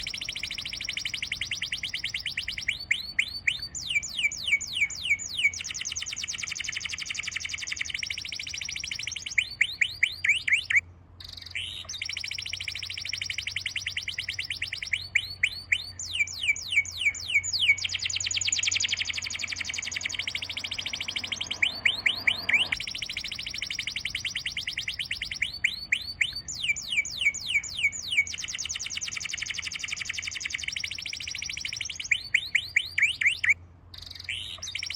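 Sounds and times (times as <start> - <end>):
bird trilling high chirps: 0.0 - 34.9.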